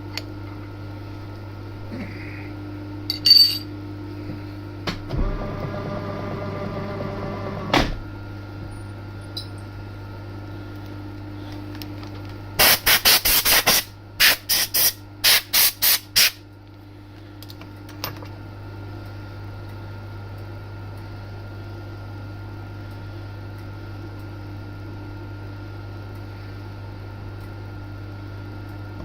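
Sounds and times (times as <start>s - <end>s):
milling machine hum: 0.0s - 12.6s.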